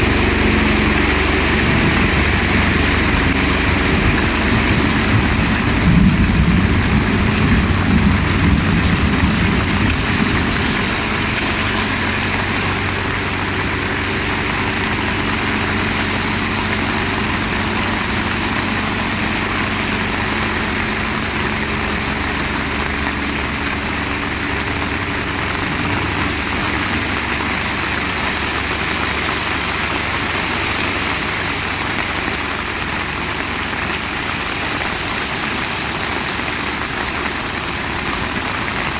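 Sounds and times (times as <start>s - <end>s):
heavy rain falling: 0.0s - 38.9s
motor engine running: 0.0s - 38.9s.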